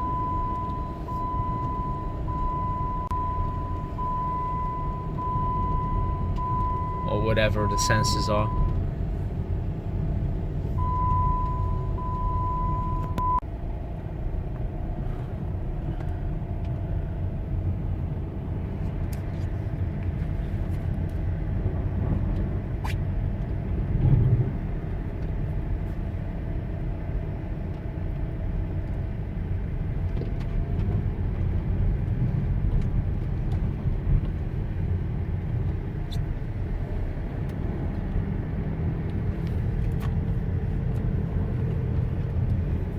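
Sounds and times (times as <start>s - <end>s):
electronic beep: 0.0s - 8.8s, 10.8s - 13.4s
engine and road noise: 0.0s - 42.9s.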